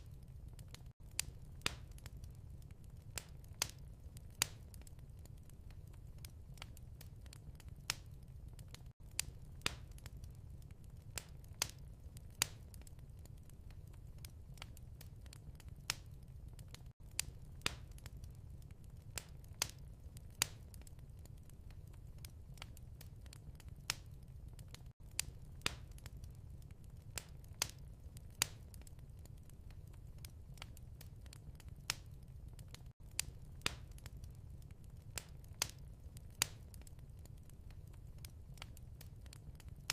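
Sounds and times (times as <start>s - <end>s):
fire popping and snapping: 0.0s - 39.9s
low rumble of burning: 0.0s - 39.9s
wood fire crackling: 0.0s - 39.9s.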